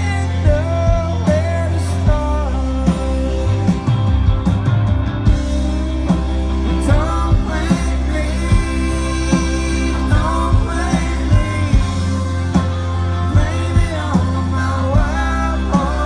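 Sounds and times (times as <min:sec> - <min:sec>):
sustained bass notes: 0:00.0 - 0:16.0
person singing: 0:05.6 - 0:16.0.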